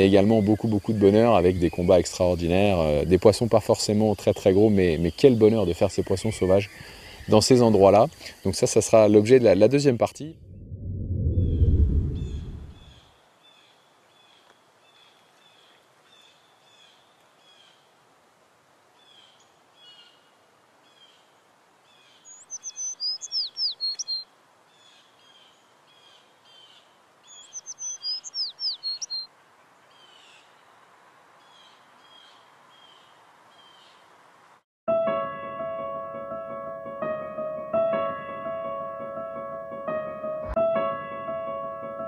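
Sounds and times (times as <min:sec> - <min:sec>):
birds chirping: 0:22.0 - 0:24.2, 0:26.5 - 0:30.5.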